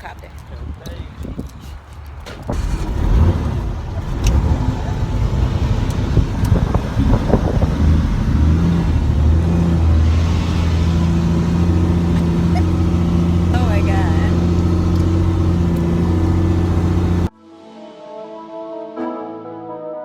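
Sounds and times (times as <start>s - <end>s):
helicopter running: 2.6s - 17.3s.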